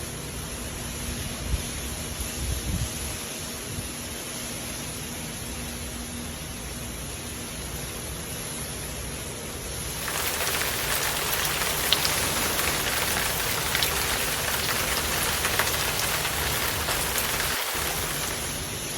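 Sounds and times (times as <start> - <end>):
hard rain falling: 9.9 - 18.9
sharp raindrop ticks: 10.0 - 18.7.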